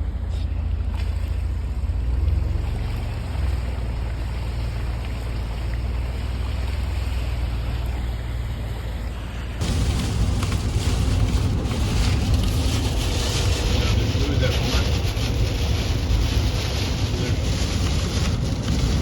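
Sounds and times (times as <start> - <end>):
wind rumble on microphone: 0.0 - 19.0
rushing hiss: 9.6 - 18.1.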